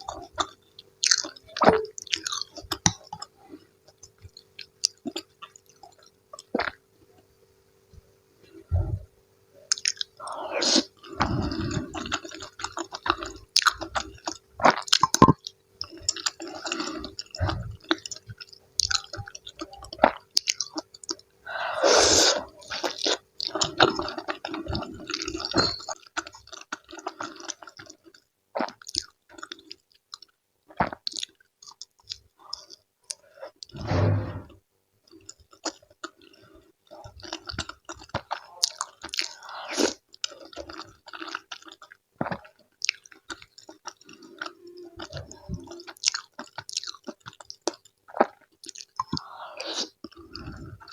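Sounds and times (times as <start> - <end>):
faint steady hum: 0.0 - 50.9
wet chewing: 9.7 - 21.3, 35.1 - 50.9.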